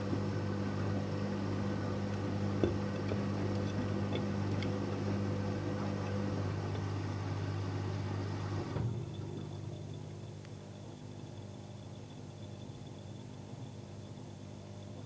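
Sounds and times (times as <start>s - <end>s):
washing machine motor humming: 0.0s - 10.0s.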